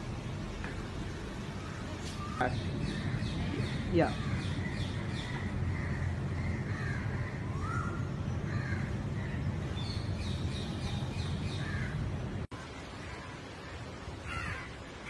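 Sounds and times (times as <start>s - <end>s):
steady low hum: 0.0s - 15.0s
birds calling: 1.0s - 15.0s.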